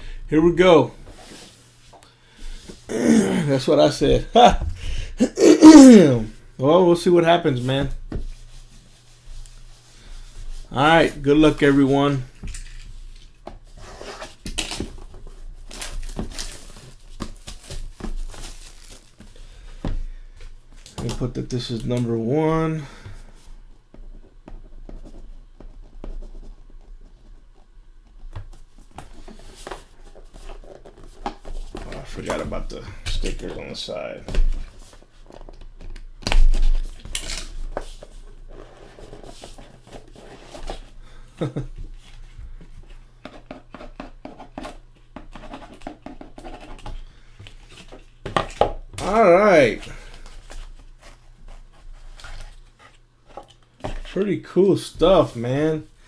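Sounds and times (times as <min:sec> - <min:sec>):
cardboard and wrapping rustling: 0:07.8 - 0:21.1, 0:28.1 - 0:56.0.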